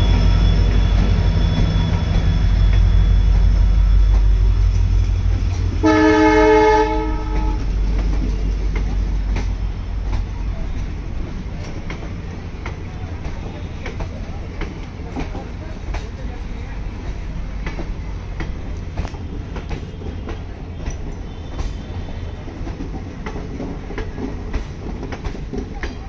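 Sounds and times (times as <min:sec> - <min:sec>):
train rumbling past: 0:00.0 - 0:26.0
train horn blast: 0:05.8 - 0:07.7.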